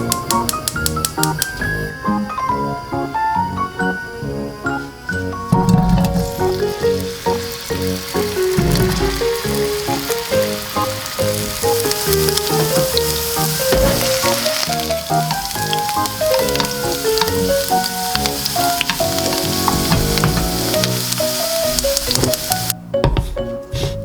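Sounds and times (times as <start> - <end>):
background music: 0.0 - 24.0
food sizzling in a pan: 5.5 - 22.8.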